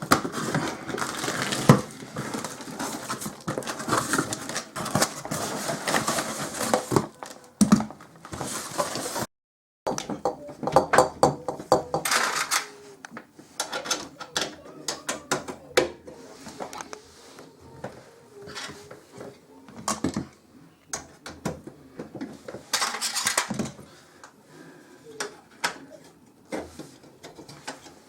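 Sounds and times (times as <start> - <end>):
rustling: 0.0 - 9.3.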